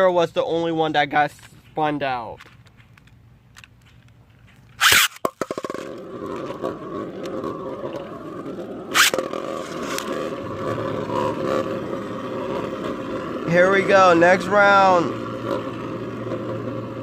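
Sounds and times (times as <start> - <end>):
sharp plastic clack: 2.3 - 6.4, 9.0 - 10.1
ripcord launch zip: 4.8 - 5.6, 8.9 - 10.1
spinning top whirring in stadium: 8.9 - 10.1.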